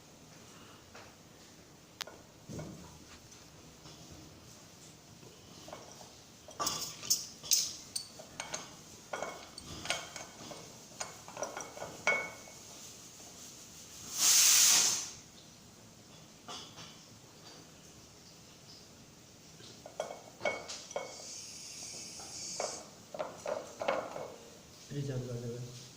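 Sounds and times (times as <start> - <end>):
metal tools clinking: 6.5 - 12.4
hiss of released gas: 14.0 - 15.3, 21.0 - 22.9.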